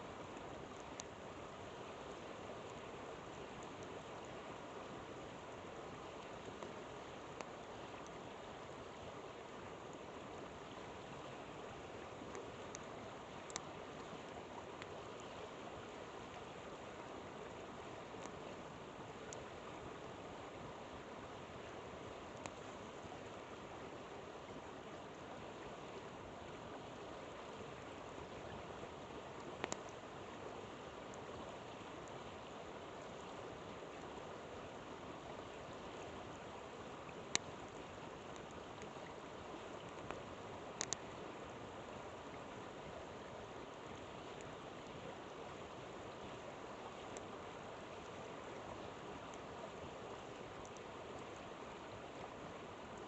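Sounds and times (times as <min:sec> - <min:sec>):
river water rushing: 0:00.0 - 0:53.0
campfire crackling pops: 0:29.6 - 0:29.9, 0:40.8 - 0:41.0.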